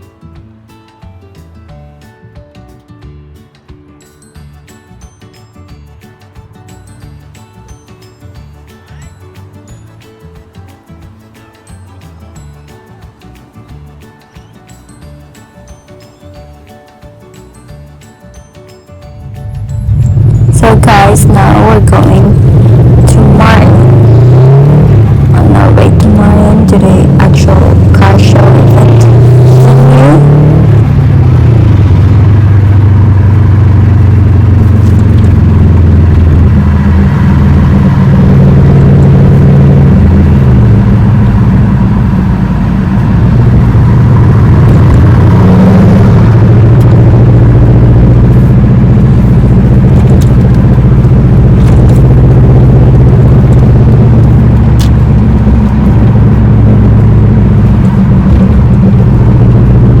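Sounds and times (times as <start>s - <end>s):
road noise: 4.4s - 60.0s
car engine: 19.1s - 60.0s.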